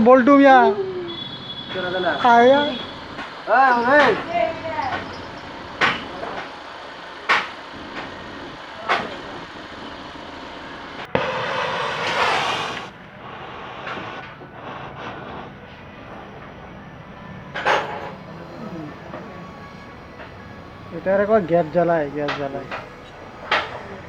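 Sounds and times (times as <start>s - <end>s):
sudden hiss: 0.0s - 24.0s.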